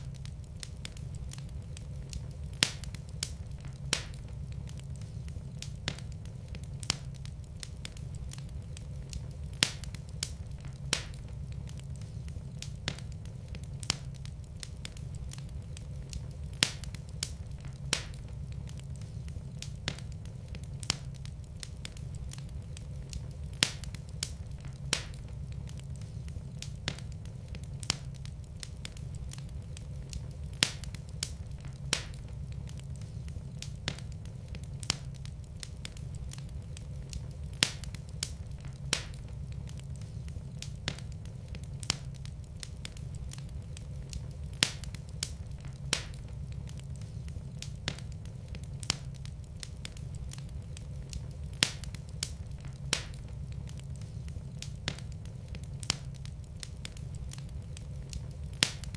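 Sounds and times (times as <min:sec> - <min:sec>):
fire pops and snaps: 0:00.0 - 0:58.9
low rumble of flames: 0:00.0 - 0:58.9.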